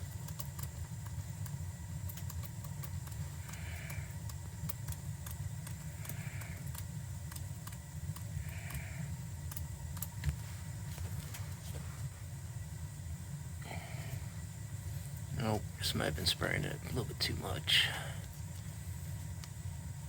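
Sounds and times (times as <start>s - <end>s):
gas burner low rumble: 0.0s - 20.0s
soft hissing puffs: 10.3s - 12.3s, 13.6s - 16.1s.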